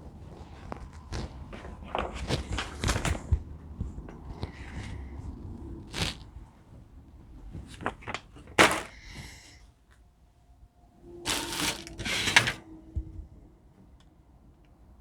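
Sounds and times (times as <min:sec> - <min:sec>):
rustling packaging: 0:11.3 - 0:12.6.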